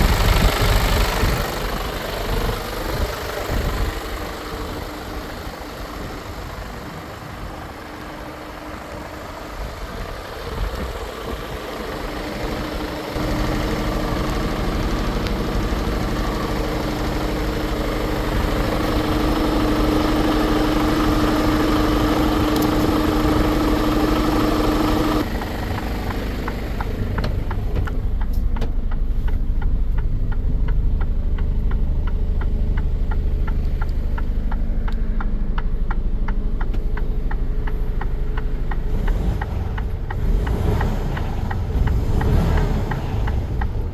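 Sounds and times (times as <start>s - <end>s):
diesel truck engine idling: 0.0s - 43.9s
steady ticking: 11.6s - 43.9s.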